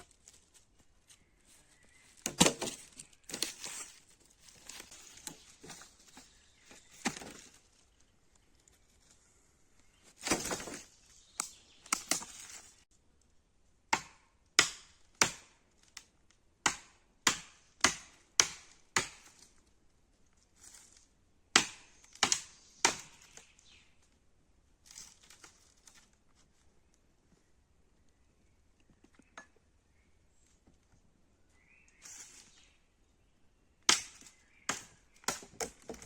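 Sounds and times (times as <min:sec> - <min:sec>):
rustling and scuffing handling noise: 0:00.0 - 0:09.2, 0:24.8 - 0:26.8
axe chopping wood: 0:02.2 - 0:02.8, 0:13.9 - 0:15.6, 0:16.6 - 0:19.4, 0:21.5 - 0:23.3, 0:33.9 - 0:36.0.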